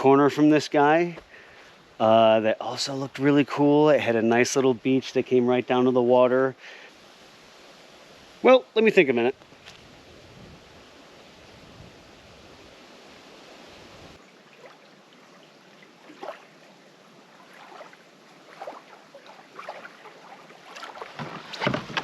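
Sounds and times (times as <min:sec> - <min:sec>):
canoe paddle splashes: 0:14.2 - 0:22.0.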